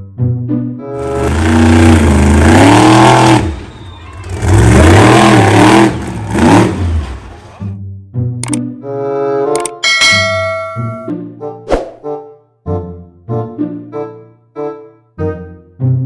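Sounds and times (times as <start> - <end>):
vehicle engine revving: 1.0 - 7.7.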